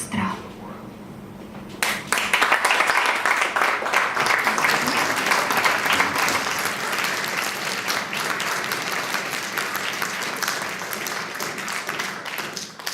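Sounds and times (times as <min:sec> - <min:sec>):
audience applauding: 0:01.8 - 0:12.9.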